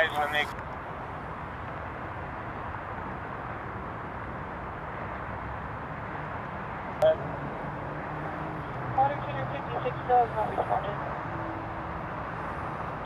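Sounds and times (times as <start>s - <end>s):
scanner radio hiss: 0.0s - 0.5s.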